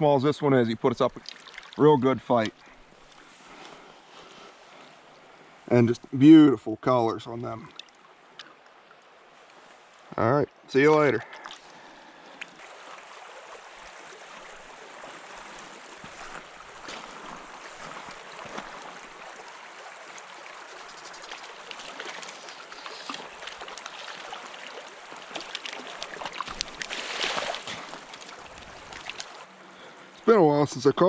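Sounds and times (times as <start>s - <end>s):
stream flowing over rocks: 0.6s - 5.2s, 10.8s - 29.7s.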